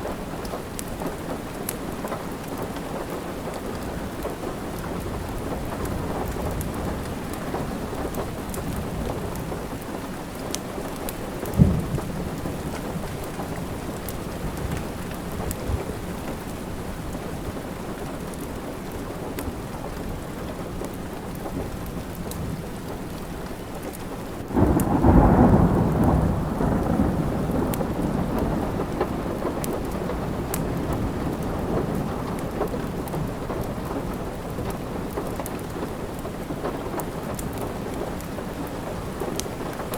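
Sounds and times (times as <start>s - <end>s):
steady rain: 0.0s - 39.9s
thunder rumbling: 10.6s - 17.5s, 24.5s - 39.8s
sharp thunder crack: 11.6s - 12.9s, 24.6s - 29.6s.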